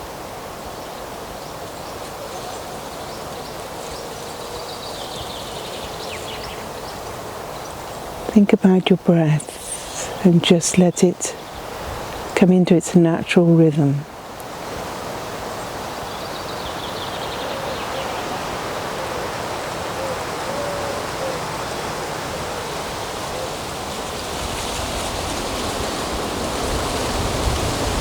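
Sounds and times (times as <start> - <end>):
breeze through trees: 0.0 - 28.0
wind buffeting microphone: 18.2 - 28.0.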